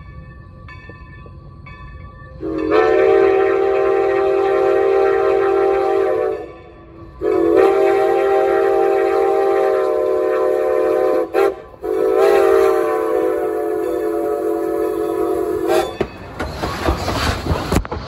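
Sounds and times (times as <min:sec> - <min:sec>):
steam whistle blasts: 0:02.4 - 0:16.0.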